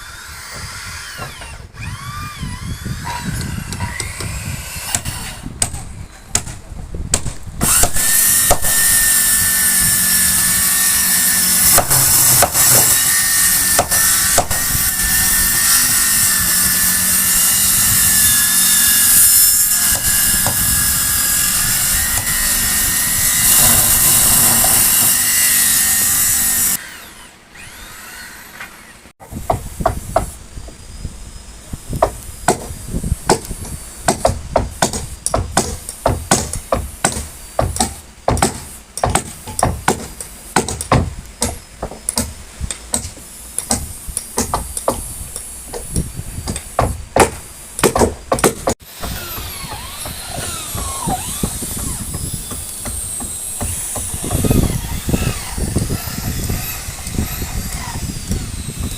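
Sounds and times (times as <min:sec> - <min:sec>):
power tool cutting wood: 0:00.0 - 0:05.4, 0:07.6 - 0:29.2, 0:48.4 - 0:58.9
hammering on wood: 0:11.7 - 0:13.1, 0:32.0 - 0:32.7, 0:34.1 - 0:45.0, 0:45.7 - 0:54.7.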